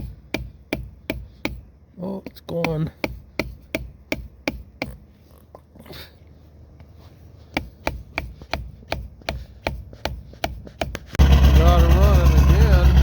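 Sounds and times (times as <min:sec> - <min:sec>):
sharp knocks: 0:00.0 - 0:01.7.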